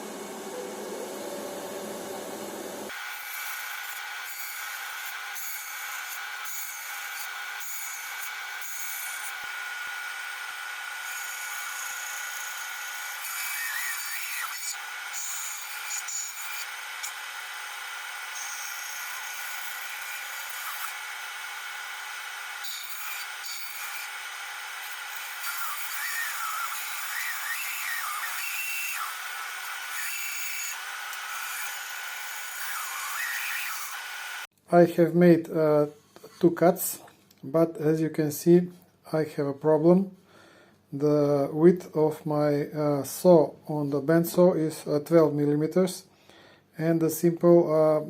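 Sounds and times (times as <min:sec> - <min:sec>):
bandsaw cutting wood: 0:02.9 - 0:34.5
bandsaw blade squealing: 0:11.1 - 0:17.2, 0:24.8 - 0:34.5.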